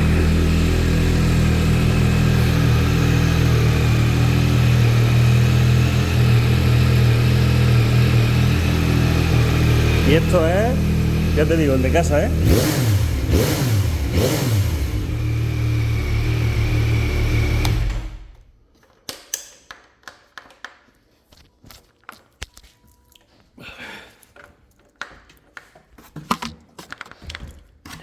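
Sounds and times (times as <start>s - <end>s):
motorcycle engine revving and idling: 0.0s - 18.5s.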